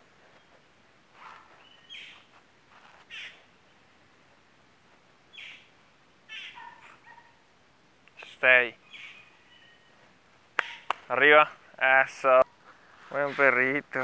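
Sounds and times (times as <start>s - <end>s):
birds calling: 1.2s - 2.3s, 3.0s - 3.9s, 5.3s - 7.4s, 8.2s - 11.1s.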